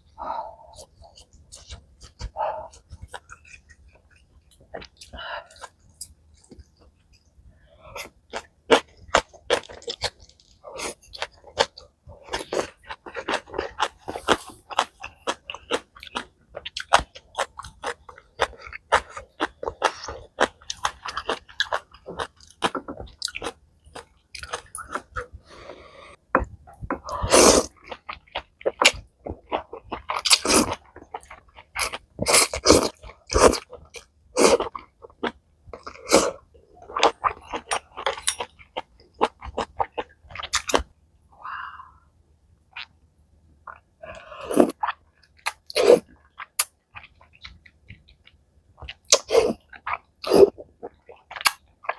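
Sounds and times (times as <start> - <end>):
person chewing food: 0.0 - 42.0, 42.7 - 43.0, 43.6 - 51.9.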